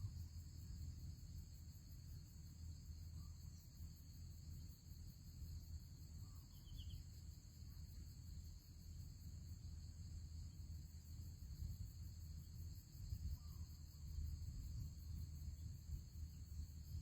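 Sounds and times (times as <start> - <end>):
high insect chorus: 0.0 - 17.0
faint bird chirp: 6.1 - 7.2.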